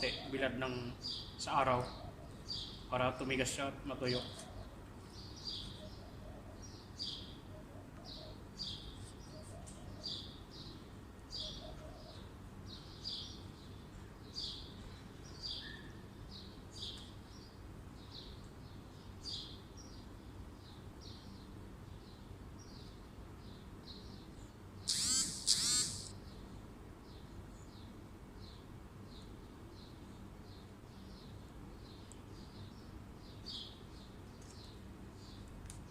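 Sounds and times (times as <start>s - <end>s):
bird chirping: 4.0s - 17.1s, 24.9s - 26.4s
sharp bird calls: 24.8s - 26.2s.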